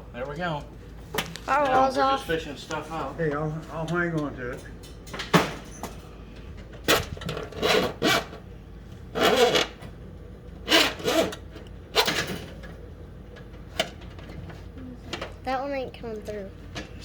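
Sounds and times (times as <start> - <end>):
wires scraping through holes: 6.9 - 8.4, 9.1 - 9.8, 10.6 - 12.3.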